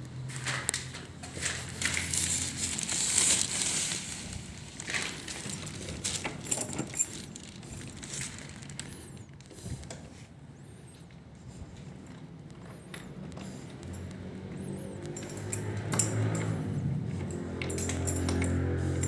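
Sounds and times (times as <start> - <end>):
plastic sheeting crinkling: 0.2 - 9.6.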